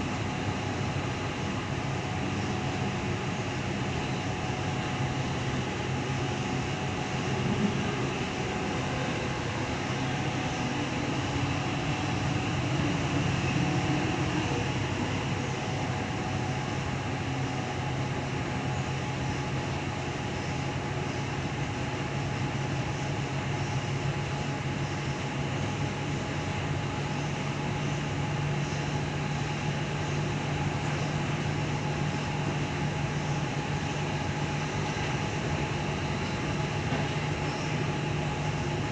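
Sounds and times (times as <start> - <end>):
train wheels rumbling on rail: 0.0 - 38.9
low hum: 3.9 - 16.2.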